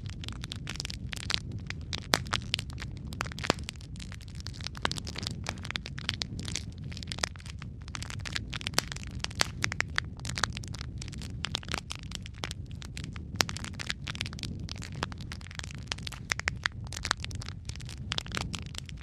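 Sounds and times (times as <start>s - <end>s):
fire crackling and popping: 0.0s - 19.0s
low rumble of flames: 0.0s - 19.0s.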